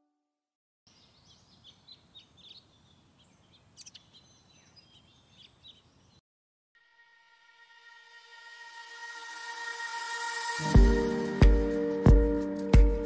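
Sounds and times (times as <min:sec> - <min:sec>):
small birds chirping: 0:00.9 - 0:06.2.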